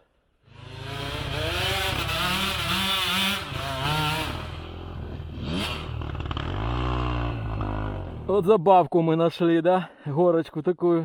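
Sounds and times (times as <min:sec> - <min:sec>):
dirt bike engine revving: 0:00.5 - 0:08.3.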